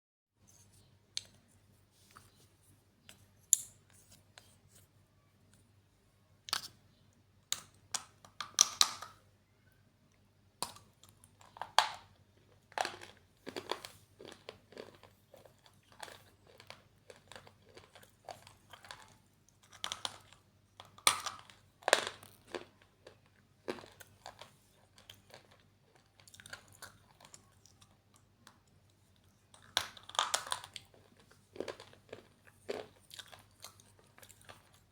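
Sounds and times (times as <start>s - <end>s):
gritty chewing crackles: 11.0s - 34.9s.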